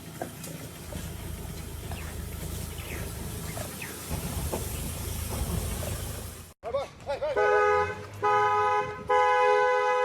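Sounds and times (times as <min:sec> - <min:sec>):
noisy outdoor background: 0:00.0 - 0:10.0.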